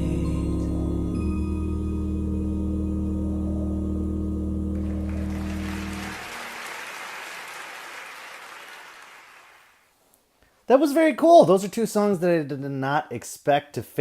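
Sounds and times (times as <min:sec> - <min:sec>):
a cappella group singing chord: 0:00.0 - 0:06.4
audience applause: 0:04.8 - 0:09.8.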